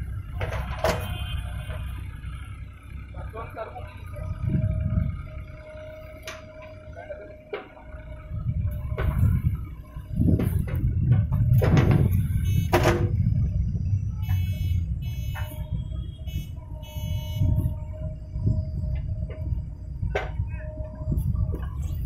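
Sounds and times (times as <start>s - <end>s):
diesel engine rumbling: 0.0s - 22.0s
thin steady whine: 12.1s - 22.0s.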